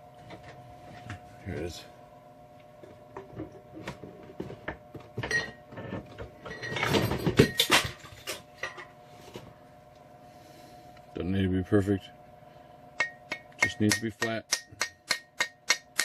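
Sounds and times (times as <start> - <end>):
hammer tapping metal: 13.0 - 16.0.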